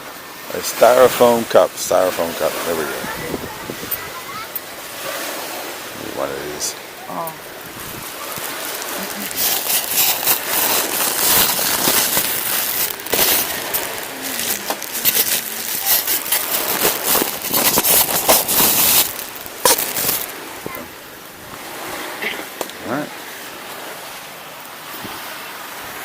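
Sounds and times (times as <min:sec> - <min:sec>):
plastic packaging crinkling: 0:07.6 - 0:20.5.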